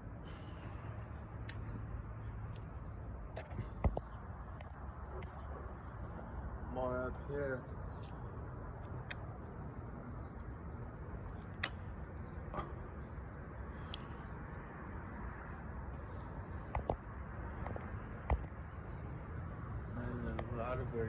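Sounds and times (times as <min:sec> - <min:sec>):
sharp clicks: 0:11.5 - 0:11.9.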